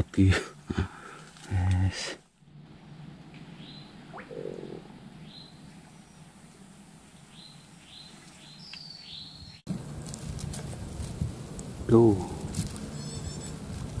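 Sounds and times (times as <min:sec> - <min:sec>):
faint outdoor ambience: 0:00.0 - 0:14.0
small birds chirping: 0:02.8 - 0:09.8, 0:11.5 - 0:14.0
bird rising whistle: 0:13.0 - 0:13.5.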